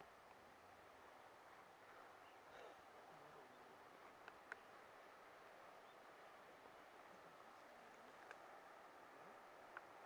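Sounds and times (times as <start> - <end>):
small tick: 4.2 - 4.7, 8.2 - 8.4, 9.7 - 9.9.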